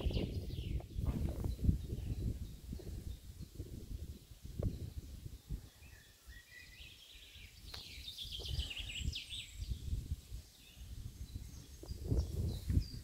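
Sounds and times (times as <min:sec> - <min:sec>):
constant low rumbling: 0:00.0 - 0:05.8
small birds chirping: 0:00.0 - 0:13.0.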